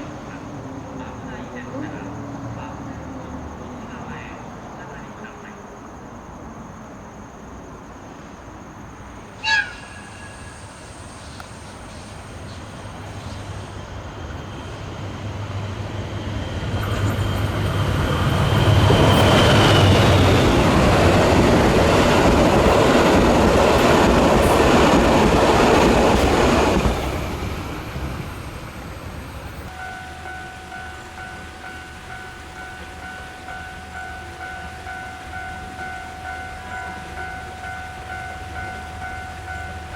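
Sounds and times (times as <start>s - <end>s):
train wheels rumbling on rails: 9.0s - 39.9s.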